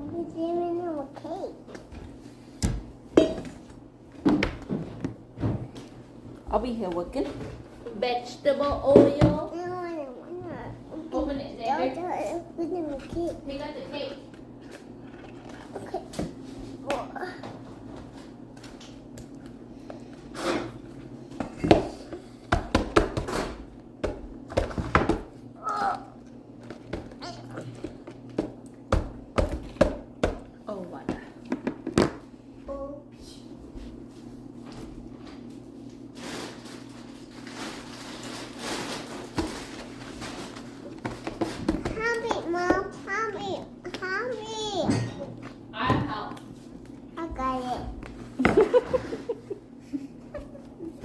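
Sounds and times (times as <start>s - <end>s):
items knocking and clattering: 2.6s - 5.9s, 8.7s - 9.5s, 20.4s - 25.3s, 26.6s - 32.2s, 37.6s - 43.0s.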